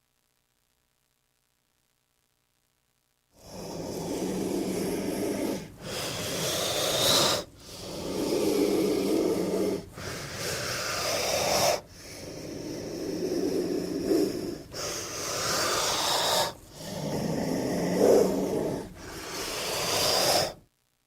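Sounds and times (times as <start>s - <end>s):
snake hissing: 3.4s - 20.6s.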